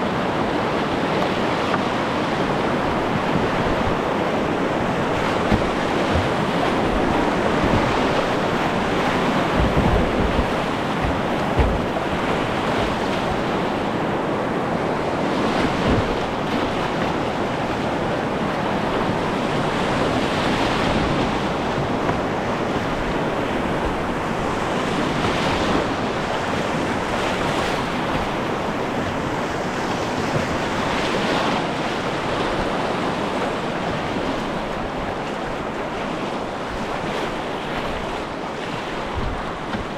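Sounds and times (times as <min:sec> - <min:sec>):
rushing river water: 0:00.0 - 0:39.9
low thumps on microphone: 0:04.6 - 0:13.7, 0:15.6 - 0:16.5.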